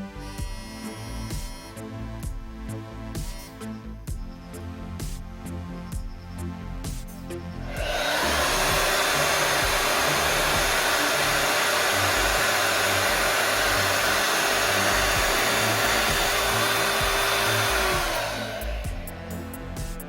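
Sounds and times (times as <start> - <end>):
background music: 0.0 - 20.0
hair dryer running: 7.6 - 20.0.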